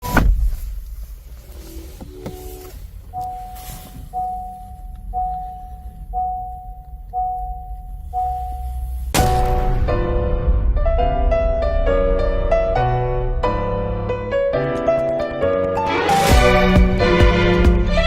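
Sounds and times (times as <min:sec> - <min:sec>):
car low rumble: 0:00.0 - 0:18.0
car warning chime dinging: 0:01.6 - 0:09.2.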